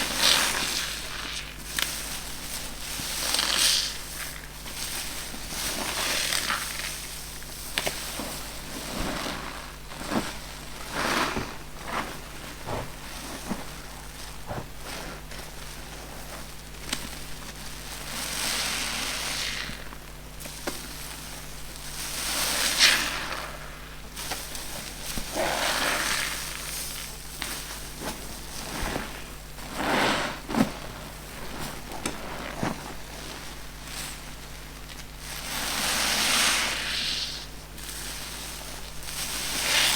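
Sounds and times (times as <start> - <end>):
sponge squeezed crackly hiss: 25.0 - 27.7, 35.4 - 38.0.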